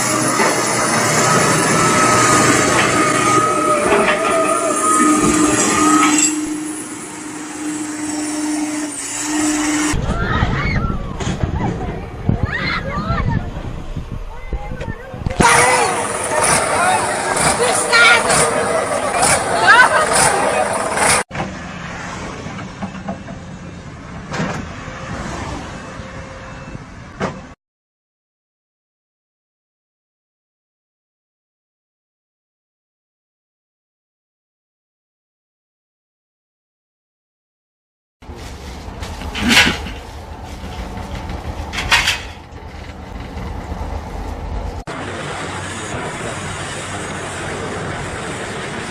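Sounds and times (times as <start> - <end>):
heavy machinery whining: 0.0 - 12.3, 13.5 - 27.0, 38.5 - 48.9
people's voices: 10.0 - 21.2
machinery noise with low hum: 38.2 - 48.9.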